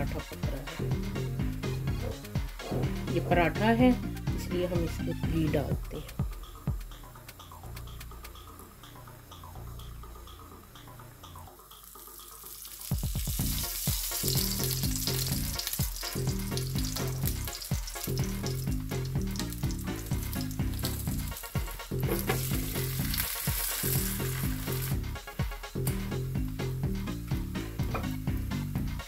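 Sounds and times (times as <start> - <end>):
background music with steady beat: 0.0 - 29.0
flatbread sizzling on a griddle: 11.8 - 25.0.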